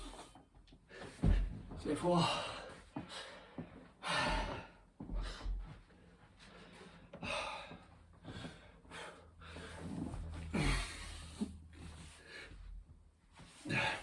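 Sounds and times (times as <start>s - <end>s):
man gasping breaths: 2.2s - 5.8s, 6.4s - 12.8s, 13.6s - 14.0s.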